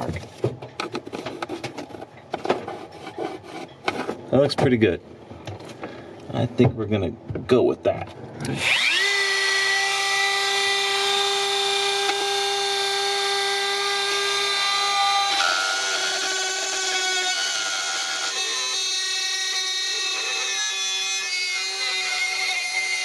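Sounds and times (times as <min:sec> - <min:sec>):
electric drill whining: 0:08.5 - 0:23.0.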